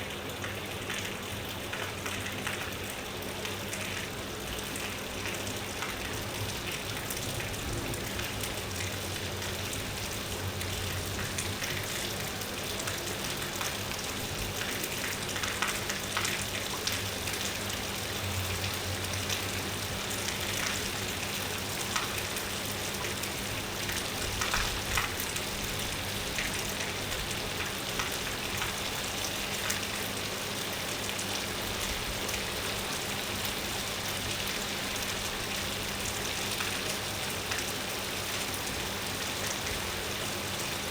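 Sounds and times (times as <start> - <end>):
steady rain falling: 0.0 - 40.9
raindrops ticking: 0.4 - 30.0.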